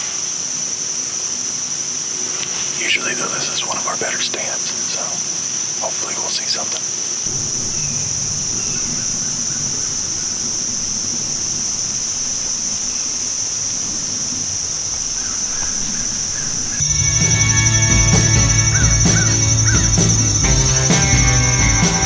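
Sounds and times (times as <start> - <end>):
faint outdoor hiss: 0.0 - 22.0
insect chorus drone: 0.0 - 22.0
music: 16.9 - 22.0.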